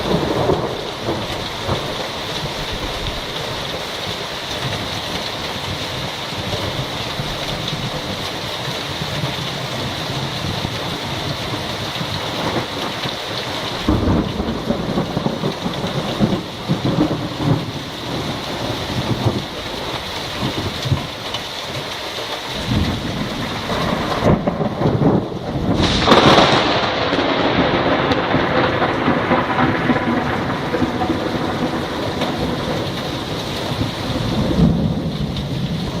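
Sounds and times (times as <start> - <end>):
thunder rumbling: 0.0 - 21.3, 22.6 - 36.0
steady rain falling: 0.0 - 36.0
loud thunderclap: 13.8 - 19.6, 22.6 - 36.0.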